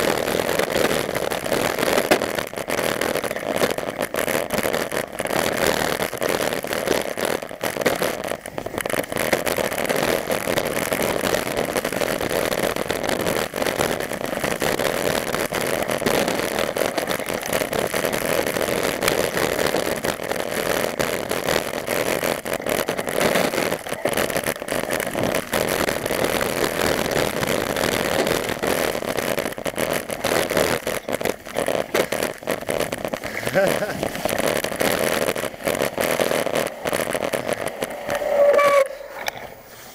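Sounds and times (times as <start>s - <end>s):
bike rushing noise: 32.9s - 34.2s.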